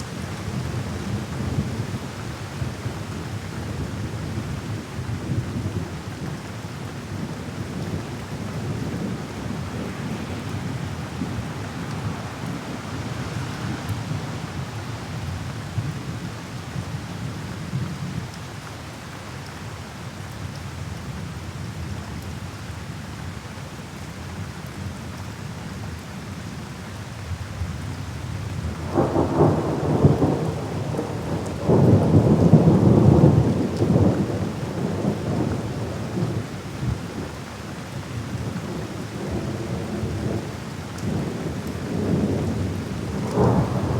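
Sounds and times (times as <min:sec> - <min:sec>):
steady rain: 0:00.0 - 0:43.9
thunder rumbling: 0:28.8 - 0:36.5, 0:41.1 - 0:43.9.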